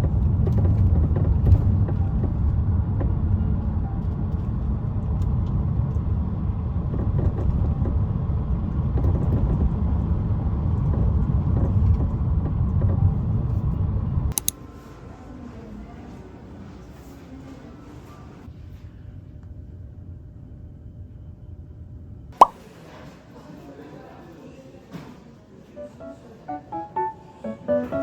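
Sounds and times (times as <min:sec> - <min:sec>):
vehicle engine rumble: 0:00.0 - 0:14.4
click: 0:14.3 - 0:14.6.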